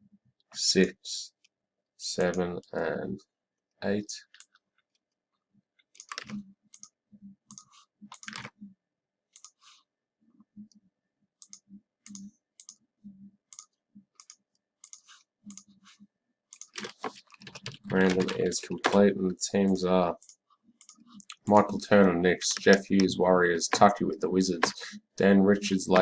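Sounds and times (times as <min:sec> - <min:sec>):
computer mouse and keys clicking: 0:05.8 - 0:08.6, 0:09.3 - 0:09.8, 0:11.4 - 0:12.8, 0:13.5 - 0:25.0.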